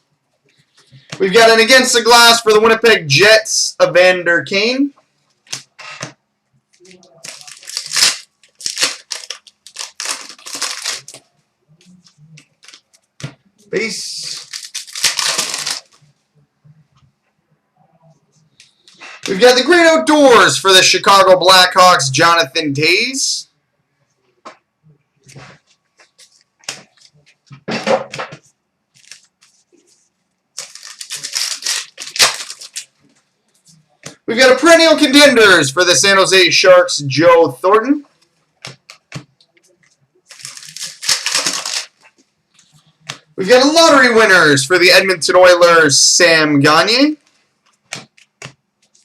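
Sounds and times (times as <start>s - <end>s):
foil wrapper crinkling: 6.8s - 11.3s, 12.4s - 13.1s, 14.2s - 16.0s, 28.9s - 30.0s, 30.6s - 33.2s, 40.2s - 43.3s.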